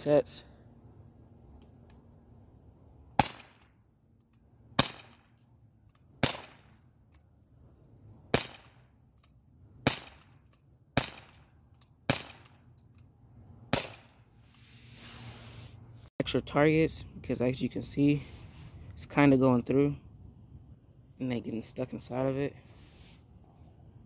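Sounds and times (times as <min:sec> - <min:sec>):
bb pistol shots: 0:03.2 - 0:03.7, 0:04.8 - 0:05.3, 0:06.2 - 0:06.8, 0:08.3 - 0:08.8, 0:09.8 - 0:10.4, 0:11.0 - 0:12.6, 0:13.7 - 0:14.1.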